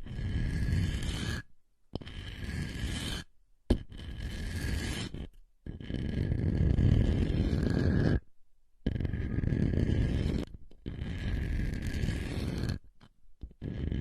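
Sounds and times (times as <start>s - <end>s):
scraping close to microphone: 0.1s - 1.4s, 4.0s - 8.2s, 9.0s - 12.9s.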